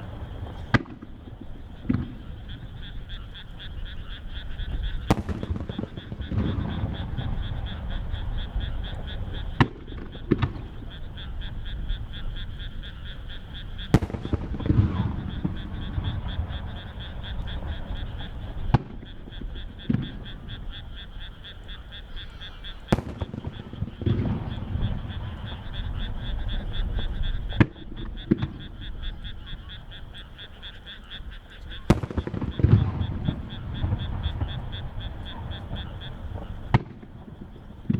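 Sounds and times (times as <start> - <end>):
frog chorus: 0.0 - 37.9
firework shells bursting: 4.4 - 11.9, 13.5 - 20.9, 22.8 - 28.9, 31.6 - 37.9.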